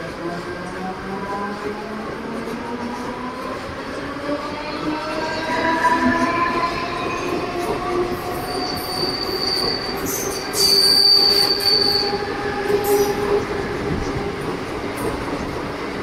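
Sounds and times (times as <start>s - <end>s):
train wheels squealing: 4.6s - 13.5s.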